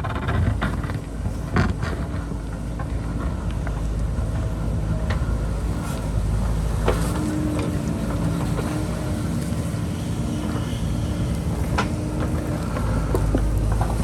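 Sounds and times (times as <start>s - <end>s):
diesel engine running: 0.0s - 14.0s
steady whine: 0.0s - 14.0s.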